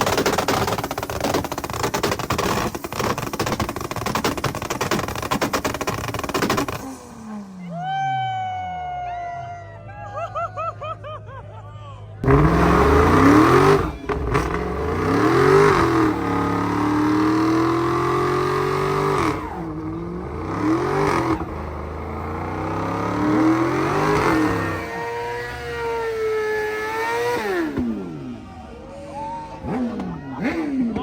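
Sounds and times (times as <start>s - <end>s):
car engine revving hard: 0.0s - 7.5s, 12.2s - 28.5s.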